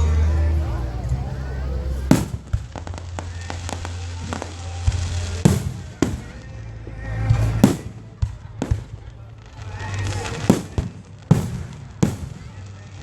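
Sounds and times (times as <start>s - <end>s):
steady low rumble: 0.0s - 9.8s
loud firework booms: 1.0s - 13.0s
small sharp firework pops: 2.1s - 6.5s, 7.3s - 13.0s.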